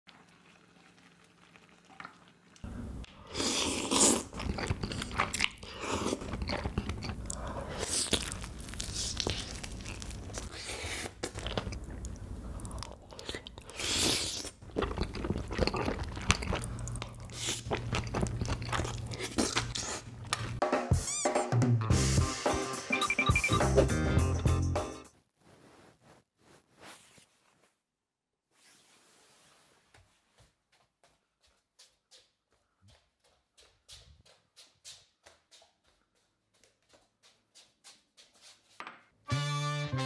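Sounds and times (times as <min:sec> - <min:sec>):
close chewing and biting food: 0:01.6 - 0:20.6.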